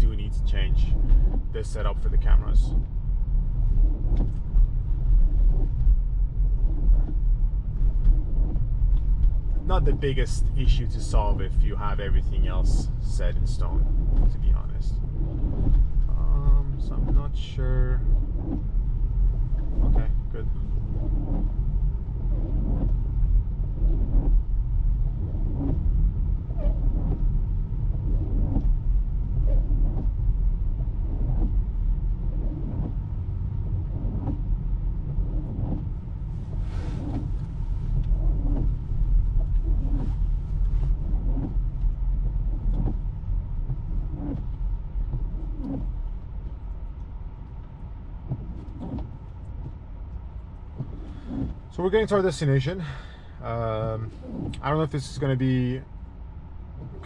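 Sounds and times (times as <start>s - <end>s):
car road and tyre rumble: 0.0s - 57.0s
knocking or swishing: 18.0s - 23.0s, 35.1s - 46.1s, 48.3s - 49.8s.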